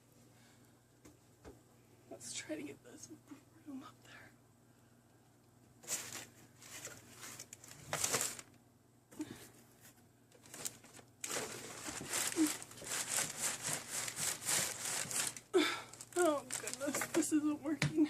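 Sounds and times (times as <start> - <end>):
broom rustling crinkly packages: 5.8 - 8.6, 9.2 - 18.0.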